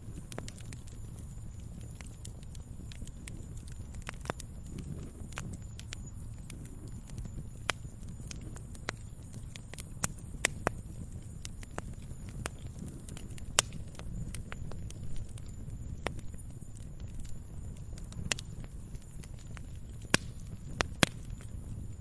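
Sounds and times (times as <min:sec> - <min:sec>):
campfire crackling: 0:00.0 - 0:22.0
fire pops and snaps: 0:00.0 - 0:22.0.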